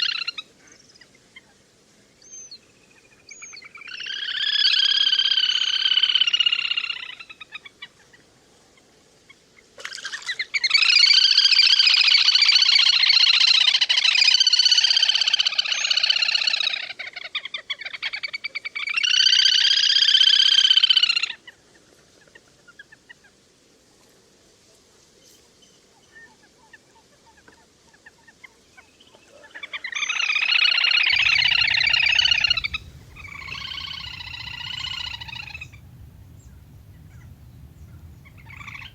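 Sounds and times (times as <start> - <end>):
bird calls from recording: 31.2 - 38.9.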